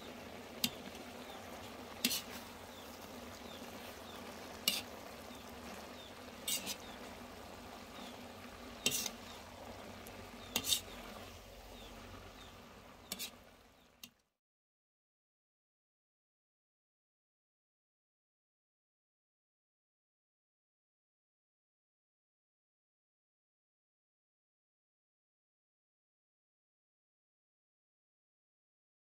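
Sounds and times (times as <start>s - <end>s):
low sizzle of simmering pan: 0.0s - 14.4s
metal spatula scraping a wok: 1.7s - 2.8s, 4.5s - 5.1s, 6.0s - 7.2s, 8.0s - 9.5s, 10.3s - 11.9s, 13.0s - 13.5s.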